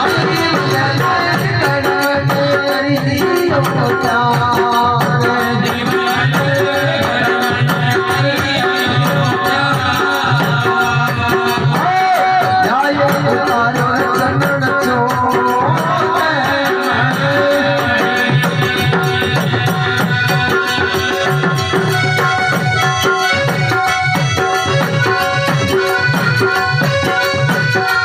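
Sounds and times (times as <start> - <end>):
hand drums beating: 0.0 - 28.0.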